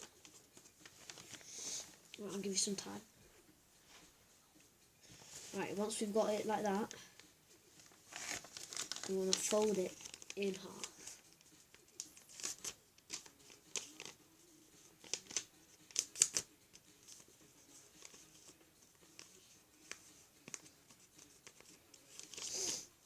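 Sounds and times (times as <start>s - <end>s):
paper being folded and creased: 0.0s - 2.0s, 7.2s - 14.2s, 15.0s - 22.8s
paper rustling: 0.0s - 2.2s, 6.8s - 22.9s.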